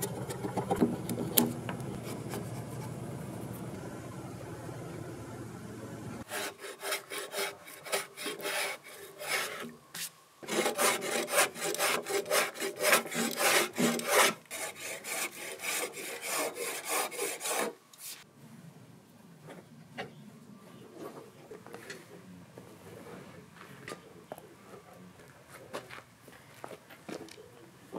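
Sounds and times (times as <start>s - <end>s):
hand plane shaving wood: 0.0s - 3.6s, 6.2s - 9.7s, 10.4s - 17.8s.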